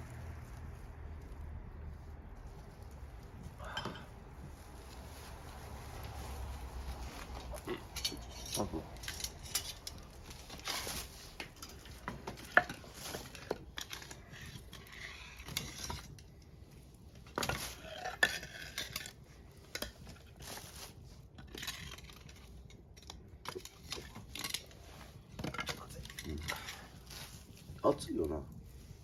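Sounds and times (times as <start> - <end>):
metal utensils clinking on pot: 3.6 - 4.1, 7.4 - 16.2.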